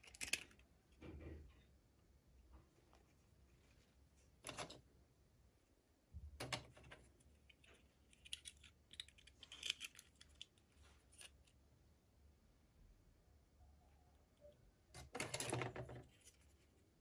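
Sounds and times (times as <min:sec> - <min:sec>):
toy packaging being opened: 0:07.5 - 0:11.5.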